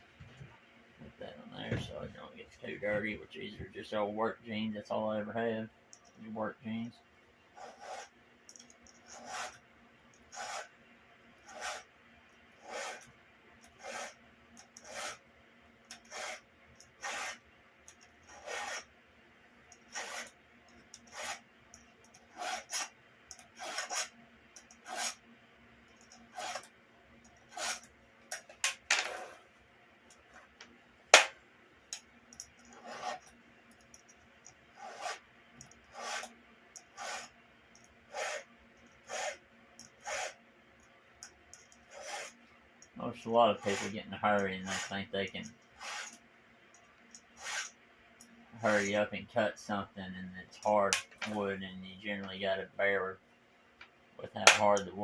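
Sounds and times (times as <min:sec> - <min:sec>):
file rasping on chainsaw chain: 0:07.6 - 0:08.1, 0:09.0 - 0:09.6, 0:10.3 - 0:10.7, 0:11.5 - 0:11.9, 0:12.6 - 0:13.1, 0:13.7 - 0:15.2, 0:15.9 - 0:17.4, 0:18.3 - 0:18.9, 0:19.8 - 0:20.3, 0:20.9 - 0:21.4, 0:22.2 - 0:24.1, 0:24.7 - 0:25.2, 0:26.1 - 0:26.7, 0:27.5 - 0:27.9, 0:32.7 - 0:33.3, 0:34.8 - 0:35.2, 0:35.8 - 0:37.3, 0:38.1 - 0:40.4, 0:41.8 - 0:42.4, 0:43.5 - 0:46.2, 0:47.3 - 0:47.7.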